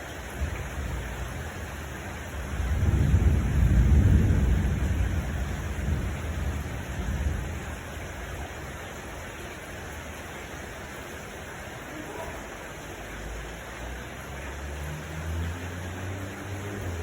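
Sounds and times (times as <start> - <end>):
steady rain: 0.0 - 17.0
low rumble of thunder: 0.3 - 9.3.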